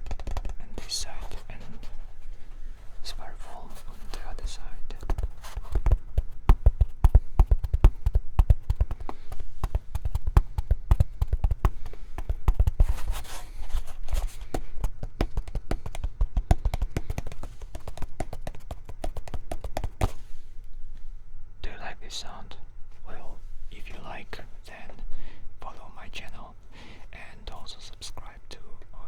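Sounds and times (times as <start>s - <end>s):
rhythmic tapping: 4.1s - 13.4s, 14.1s - 20.2s
breathy hiss: 23.1s - 28.8s.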